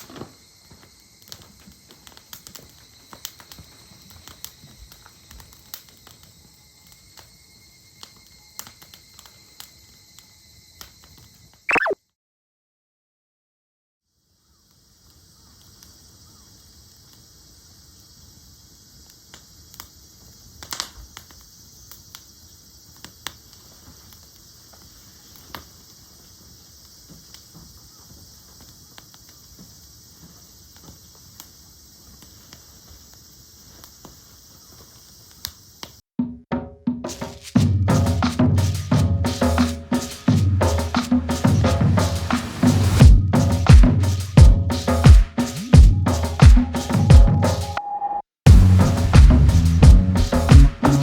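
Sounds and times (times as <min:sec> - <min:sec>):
campfire crackling and popping: 0:00.0 - 0:09.7, 0:19.1 - 0:29.4, 0:37.1 - 0:47.4, 0:48.5 - 0:51.0
steady high hiss: 0:14.4 - 0:36.0, 0:37.1 - 0:47.8, 0:48.5 - 0:51.0.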